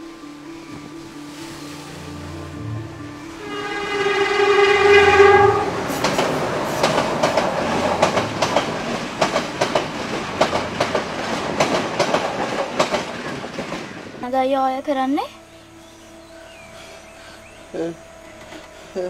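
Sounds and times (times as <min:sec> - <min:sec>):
train horn chord: 0:00.0 - 0:09.1
train rumble: 0:00.0 - 0:19.0
wheels clattering over rail joints: 0:04.5 - 0:15.0.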